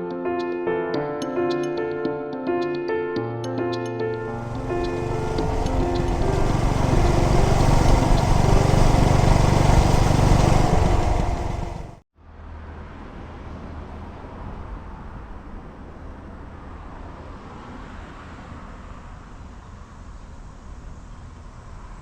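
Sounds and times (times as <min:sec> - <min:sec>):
motorcycle engine running loudly: 0:04.2 - 0:12.0
quiet low engine hum: 0:04.2 - 0:12.0.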